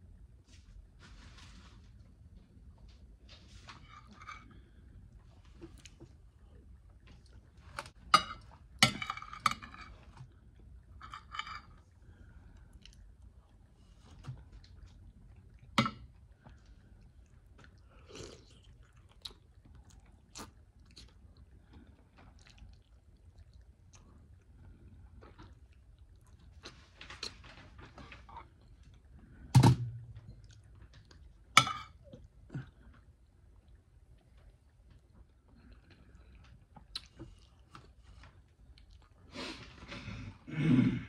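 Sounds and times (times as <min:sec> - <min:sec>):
person chewing: 0:11.6 - 0:27.3, 0:30.2 - 0:39.5
cutlery clinking on plate: 0:31.6 - 0:32.0.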